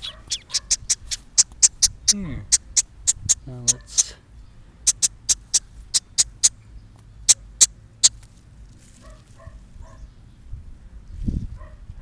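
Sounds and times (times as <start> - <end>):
baby bird cheeping: 0.0 - 4.2, 4.8 - 6.6, 7.2 - 8.2.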